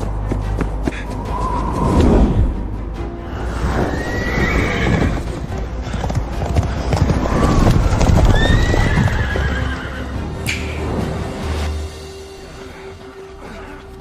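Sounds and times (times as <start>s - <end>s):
dramatic background music: 0.0s - 14.0s
horse whinnying: 3.7s - 5.3s, 7.1s - 10.2s
horses galloping: 4.3s - 10.0s.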